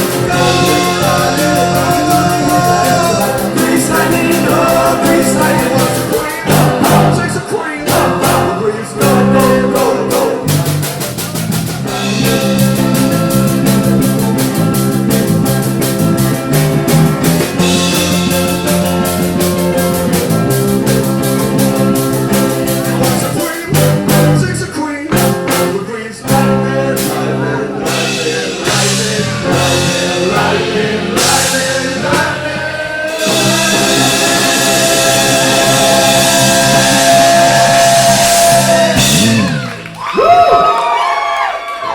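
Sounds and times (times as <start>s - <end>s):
rock and roll band playing: 0.0s - 41.8s
vocal whoops: 35.6s - 41.9s.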